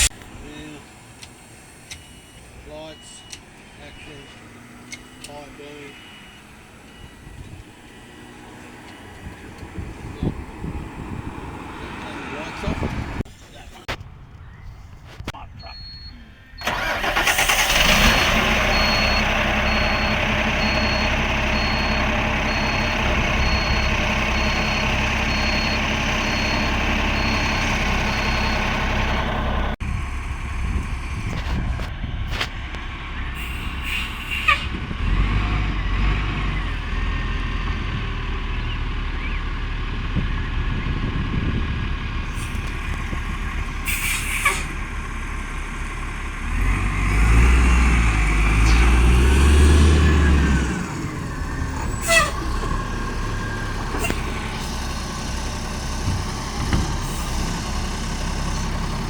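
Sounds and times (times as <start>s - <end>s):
diesel engine rumble: 0.0s - 59.0s
garbage truck machine noise: 16.6s - 59.0s.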